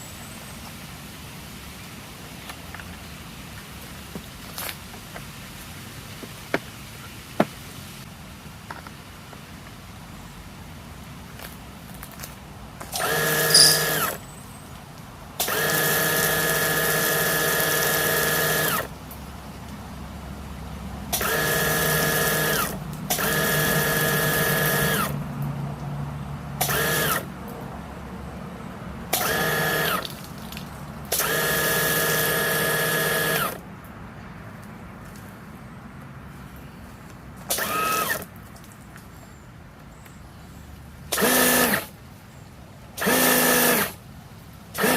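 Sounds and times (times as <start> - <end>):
pressure washer motor whine: 12.9 - 14.2, 15.4 - 18.9, 21.1 - 25.1, 26.6 - 27.3, 29.1 - 30.1, 31.1 - 33.6.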